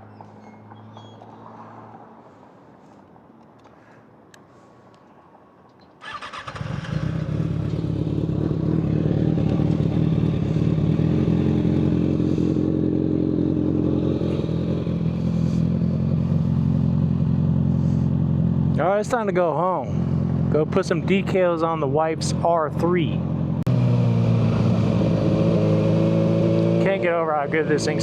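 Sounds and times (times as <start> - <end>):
motorcycle engine starting and idling: 6.0 - 28.0.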